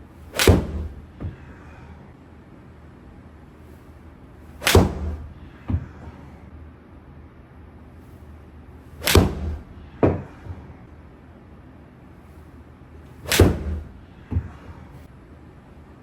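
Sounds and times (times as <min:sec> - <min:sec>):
golf club striking ball: 0:00.3 - 0:01.0, 0:04.6 - 0:05.3, 0:09.0 - 0:09.7, 0:13.2 - 0:14.0.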